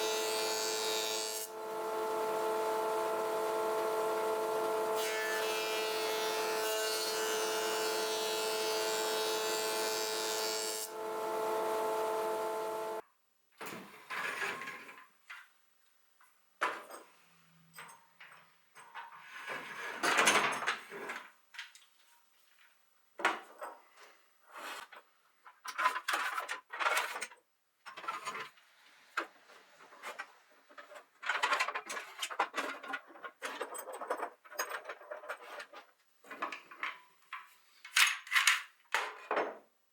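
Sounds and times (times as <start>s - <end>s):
power tool motor running: 1.5s - 6.6s, 10.8s - 13.0s.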